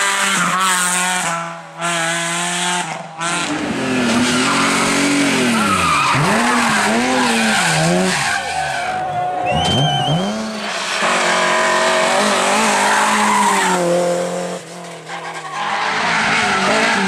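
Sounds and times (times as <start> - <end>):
rally car engine revving: 0.0 - 17.0
tyres skidding: 0.2 - 17.0.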